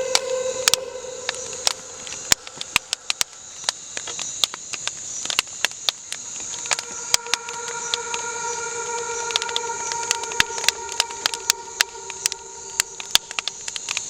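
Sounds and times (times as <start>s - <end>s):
droning hum: 0.0s - 4.8s, 5.8s - 14.0s
electronic clicks and crackles: 0.0s - 14.0s
steady high hiss: 0.0s - 14.0s.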